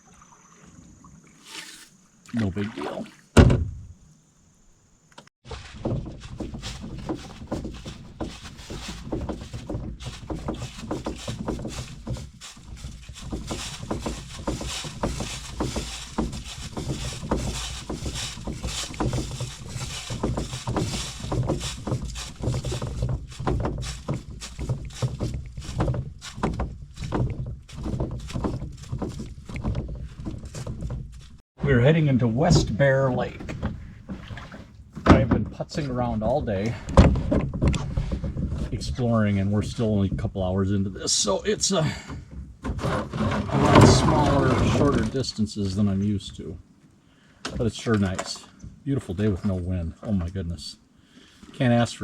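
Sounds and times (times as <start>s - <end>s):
gear and brush rustling: 5.4s - 31.4s, 42.3s - 47.0s
footsteps on forest trail: 5.5s - 31.5s.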